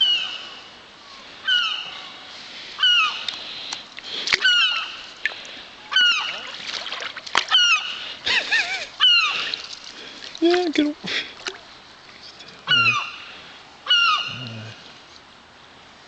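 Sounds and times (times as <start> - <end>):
gulls squawking: 5.9 - 6.6, 7.5 - 9.6, 12.7 - 13.3, 13.9 - 14.5.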